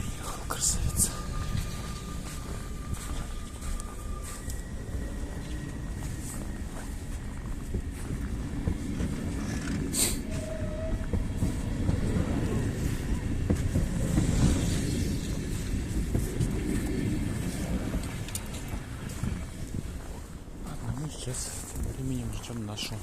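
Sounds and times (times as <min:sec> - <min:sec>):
electric train rumbling past: 0:00.0 - 0:23.0.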